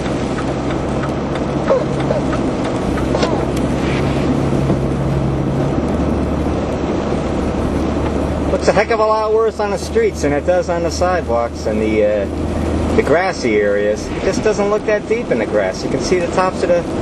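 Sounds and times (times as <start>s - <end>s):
low engine hum: 0.0s - 17.0s
tyres hissing on slushy road: 0.0s - 17.0s.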